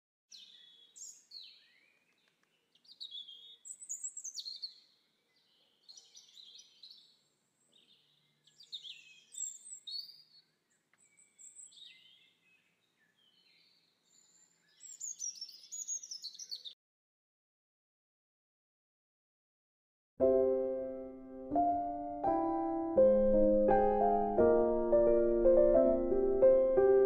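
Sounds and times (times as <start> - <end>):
birds chirping faintly: 0.3 - 16.8.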